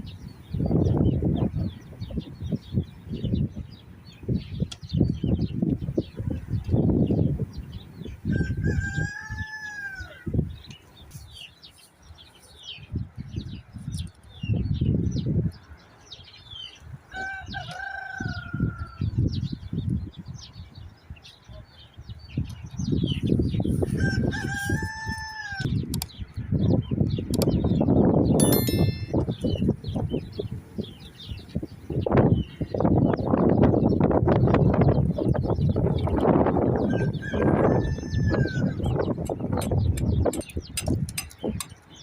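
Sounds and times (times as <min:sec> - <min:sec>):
small birds chirping: 0:00.0 - 0:42.0
rooster crowing: 0:08.3 - 0:10.3, 0:17.1 - 0:19.1, 0:24.0 - 0:25.7, 0:36.8 - 0:38.8.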